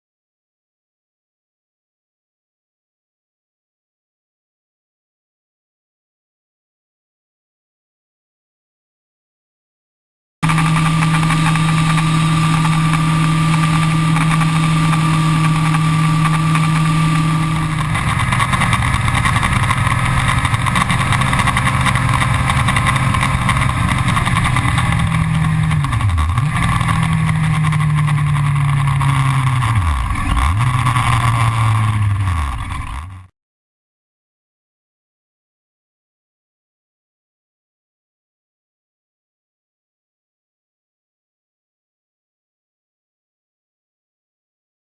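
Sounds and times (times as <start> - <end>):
motorcycle engine running: 10.4 - 33.3.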